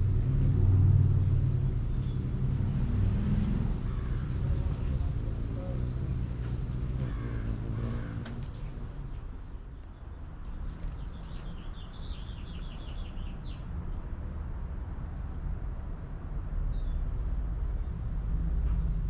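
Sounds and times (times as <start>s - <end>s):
low traffic rumble: 0.0s - 19.0s
small bird chirping: 9.7s - 13.6s.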